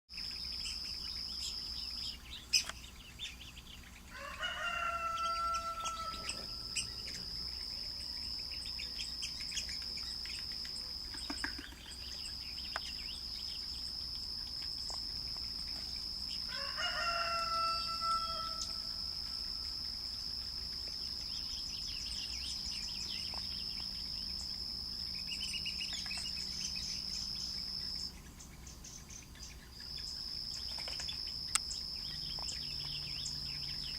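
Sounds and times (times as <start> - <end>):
high insect drone: 0.1 - 33.9
large bird crowing: 4.0 - 9.0, 16.3 - 20.2.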